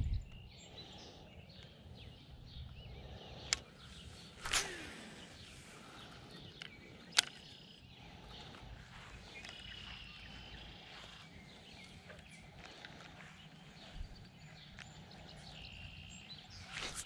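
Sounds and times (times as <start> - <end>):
steady low rumble: 0.0 - 0.8, 2.0 - 17.0
birds giving high thin calls: 0.8 - 17.0.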